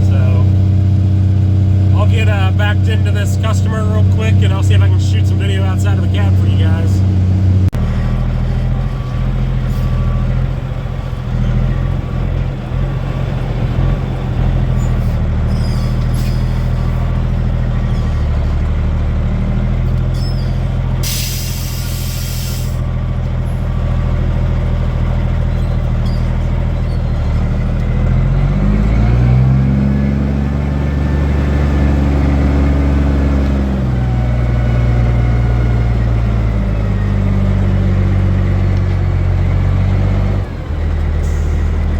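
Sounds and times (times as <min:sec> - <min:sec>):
diesel truck engine running: 0:00.0 - 0:41.9
air brakes hissing: 0:15.1 - 0:17.0, 0:20.2 - 0:22.9, 0:41.2 - 0:41.8.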